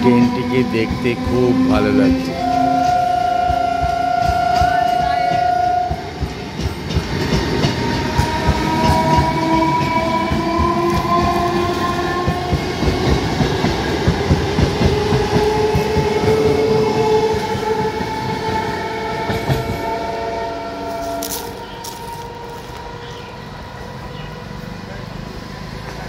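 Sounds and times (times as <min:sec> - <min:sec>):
train wheels clattering over rail joints: 0:02.4 - 0:18.6.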